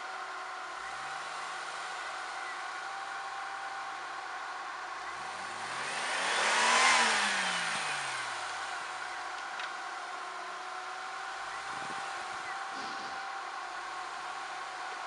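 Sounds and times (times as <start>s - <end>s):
vehicle driving past: 5.3s - 9.1s.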